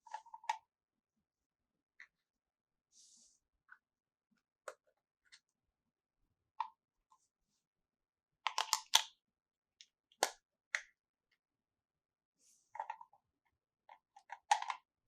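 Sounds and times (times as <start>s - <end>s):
plastic toy pieces clicking: 8.5s - 9.1s.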